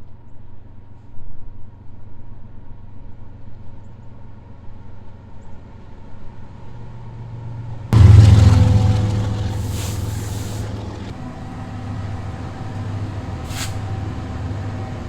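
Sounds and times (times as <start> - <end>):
locomotive engine droning: 8.0 - 15.0.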